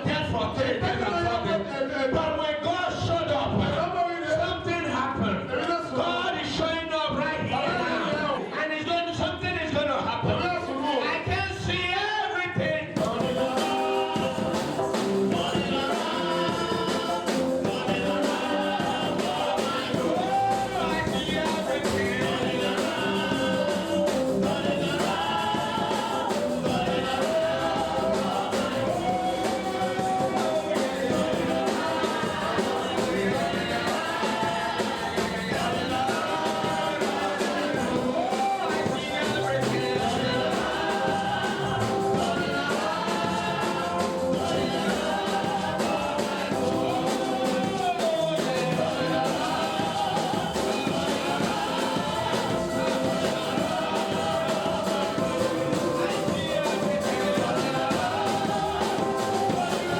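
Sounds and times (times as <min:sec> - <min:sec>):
gospel voices singing together: 0:00.0 - 0:59.9
gospel instruments playing: 0:12.8 - 0:59.9
percussive beat: 0:12.9 - 0:59.9.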